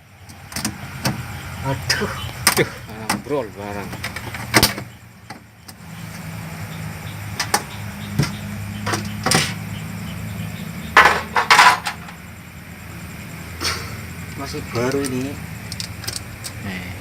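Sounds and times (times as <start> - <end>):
knocks and clatter of panels: 0.5 - 1.3, 1.9 - 6.2, 7.3 - 9.6, 10.9 - 12.2.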